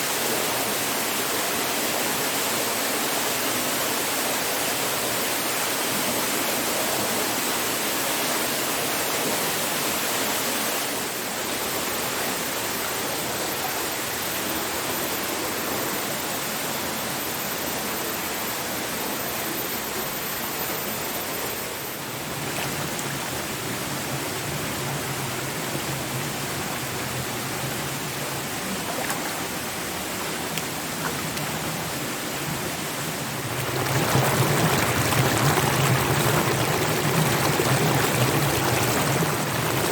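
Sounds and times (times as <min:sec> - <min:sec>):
waterfall rushing: 0:28.3 - 0:39.9.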